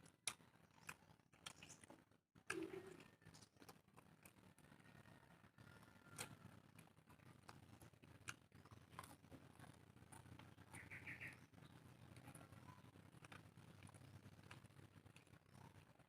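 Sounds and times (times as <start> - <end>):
soft chewing: 0.0 - 16.0.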